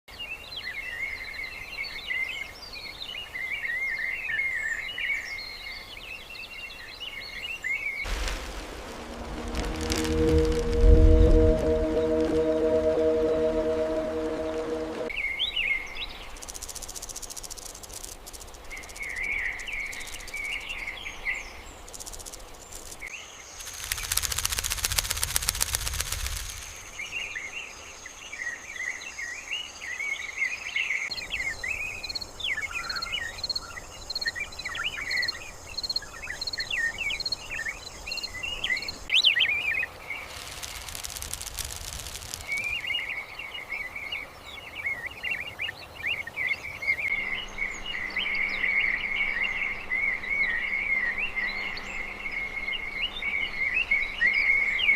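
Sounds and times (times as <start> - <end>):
loud rapid rattling rush: 8.1 - 15.0, 23.7 - 26.9, 40.3 - 42.8
high insect buzz: 8.1 - 15.1, 23.6 - 27.1, 40.2 - 42.9.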